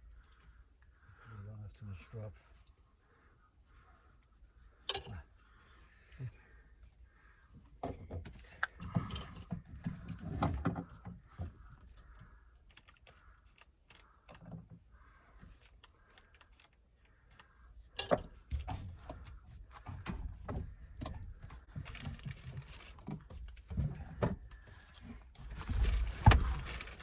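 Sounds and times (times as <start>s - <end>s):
tools and parts rattling: 4.8s - 5.4s, 7.8s - 14.7s, 15.4s - 24.6s.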